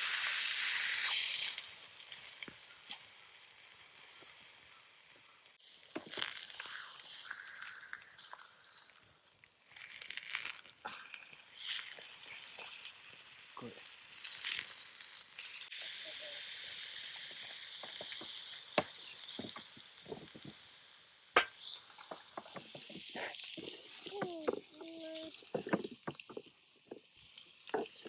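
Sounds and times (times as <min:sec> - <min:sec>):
food sizzling in a pan: 0:00.0 - 0:04.6, 0:05.6 - 0:09.0, 0:09.6 - 0:25.8
utensils clicking and knocking: 0:21.4 - 0:27.0.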